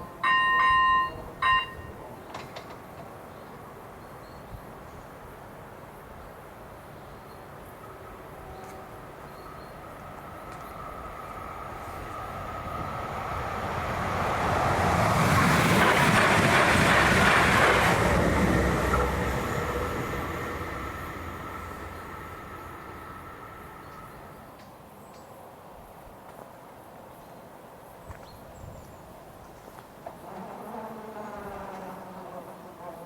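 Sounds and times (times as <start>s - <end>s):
train passing: 0.0s - 24.7s
electronic warning bell ringing: 0.2s - 2.0s.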